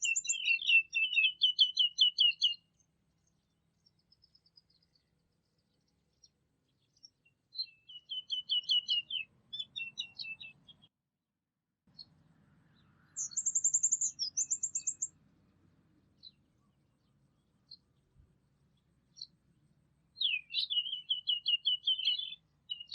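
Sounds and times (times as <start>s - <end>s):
very high fast bird trill: 0.0s - 2.5s, 13.2s - 15.1s
small birds chirping: 0.0s - 10.9s, 11.9s - 22.9s.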